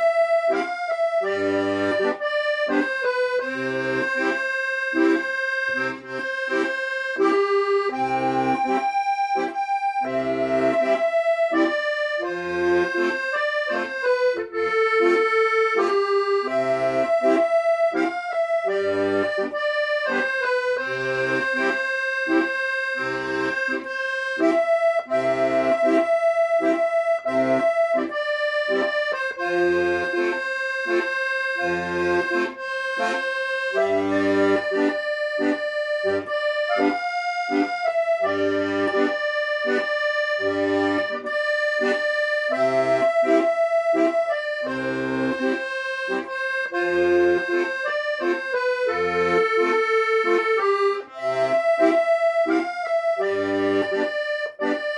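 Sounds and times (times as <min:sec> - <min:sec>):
accordion melody: 0:00.0 - 0:54.9
bass and chord accompaniment: 0:00.0 - 0:54.9.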